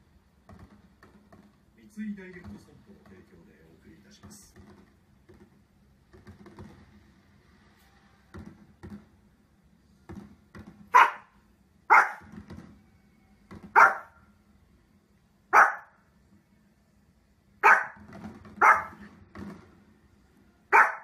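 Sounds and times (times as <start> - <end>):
dog barking sharply: 10.9 - 12.3, 13.8 - 14.2, 15.5 - 15.9, 17.6 - 18.0, 18.6 - 19.0, 20.7 - 21.0.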